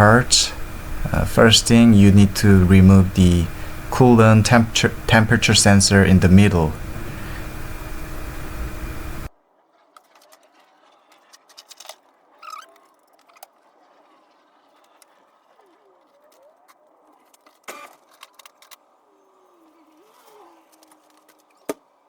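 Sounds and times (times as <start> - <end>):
loud steady noise: 0.0 - 9.3.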